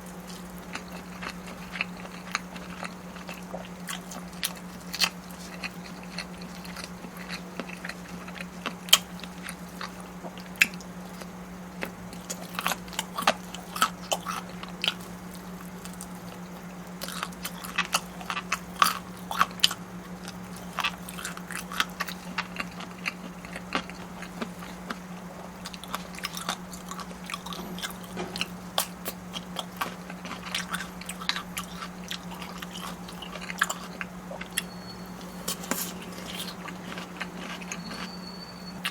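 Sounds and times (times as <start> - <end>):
biting and chewing crunches: 0.0 - 38.9
low hum: 23.5 - 38.9.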